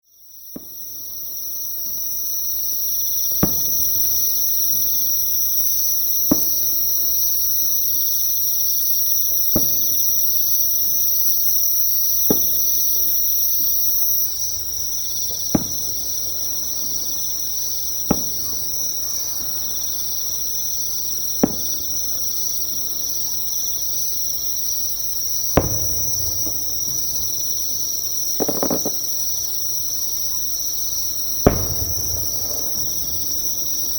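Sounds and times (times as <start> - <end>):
insects trilling: 0.1 - 33.9
distant fireworks bangs: 3.3 - 7.2, 9.3 - 11.1, 12.1 - 23.3, 25.4 - 29.8, 31.1 - 33.9.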